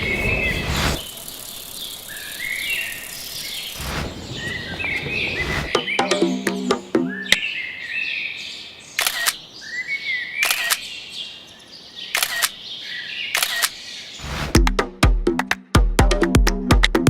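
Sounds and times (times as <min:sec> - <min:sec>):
birds chirping: 0:00.0 - 0:14.4
camera shutter double click: 0:09.0 - 0:09.4, 0:10.4 - 0:10.8, 0:12.2 - 0:12.6, 0:13.4 - 0:13.8.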